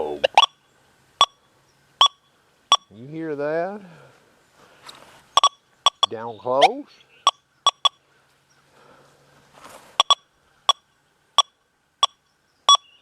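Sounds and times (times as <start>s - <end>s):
metal detector beeping: 1.2s - 1.4s, 2.0s - 2.9s, 5.3s - 6.2s, 7.2s - 8.0s, 10.0s - 13.0s.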